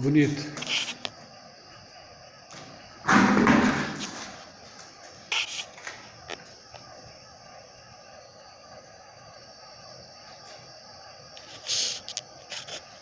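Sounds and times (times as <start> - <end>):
heavy thud: 3.0 - 4.4.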